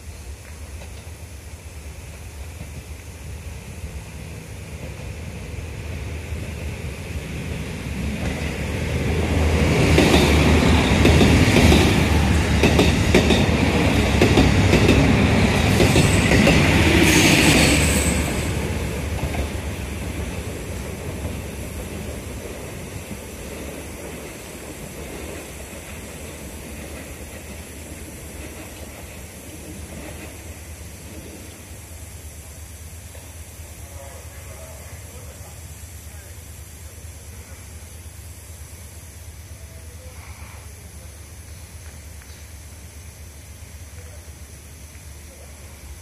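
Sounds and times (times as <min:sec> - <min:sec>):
train engine hum: 0:00.0 - 0:46.0
train wheel clatter: 0:00.1 - 0:01.3, 0:02.0 - 0:03.2, 0:06.8 - 0:31.7
high wheel squeal: 0:17.0 - 0:18.5.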